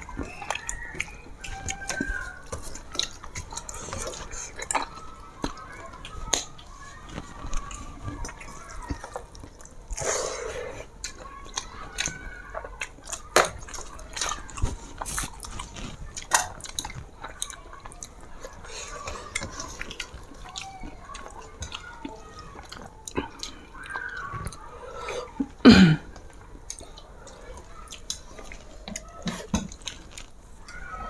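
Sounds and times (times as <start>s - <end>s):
rustling: 0.0s - 10.9s, 13.7s - 21.4s
chewing: 0.0s - 31.0s.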